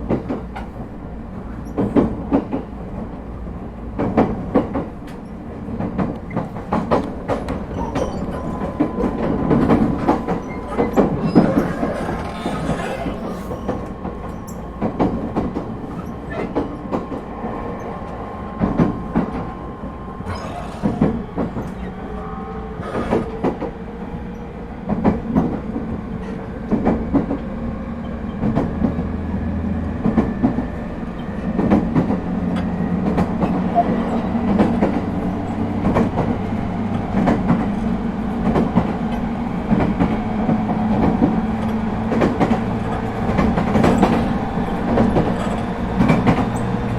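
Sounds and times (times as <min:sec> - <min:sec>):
wheels clicking over rail joints: 0:00.0 - 0:17.2, 0:30.0 - 0:46.9
train rumble from inside: 0:00.0 - 0:46.9.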